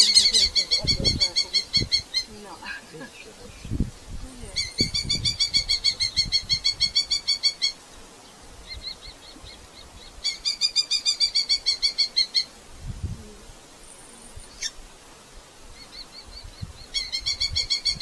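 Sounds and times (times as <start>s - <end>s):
falcon calling: 0.0s - 2.8s.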